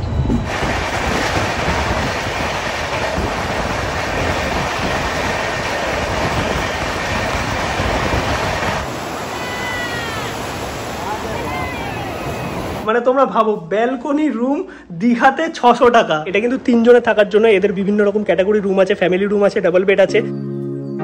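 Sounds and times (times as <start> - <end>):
surf rushing: 0.0 - 12.9.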